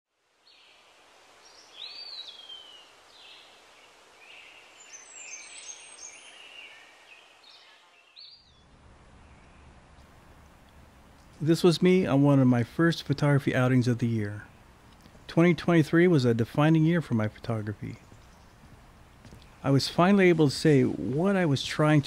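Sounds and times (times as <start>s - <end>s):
faint outdoor hiss: 0.1s - 22.0s
birds chirping and whistling: 4.2s - 9.7s.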